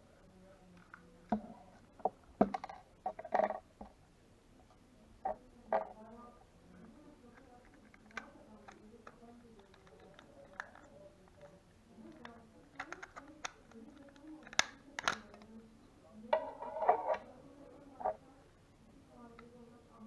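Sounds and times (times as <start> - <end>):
plastic mouse parts clicking: 7.4 - 15.5.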